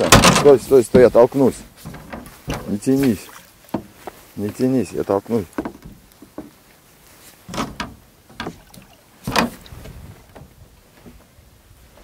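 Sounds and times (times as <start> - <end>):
oar knocking on boat: 0.0 - 4.2, 5.5 - 6.6
oar swishing: 0.0 - 12.0.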